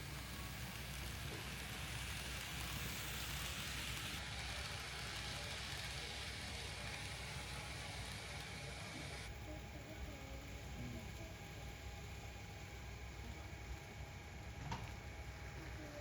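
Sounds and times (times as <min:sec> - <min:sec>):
model train rolling on track: 0:00.0 - 0:09.2.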